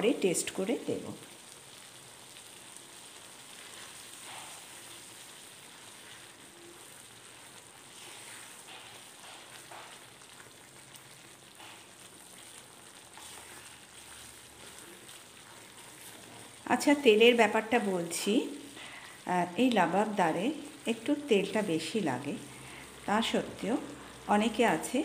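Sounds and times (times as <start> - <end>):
masala sizzling in oil: 0.0 - 25.0
wooden spatula stirring: 3.6 - 20.0.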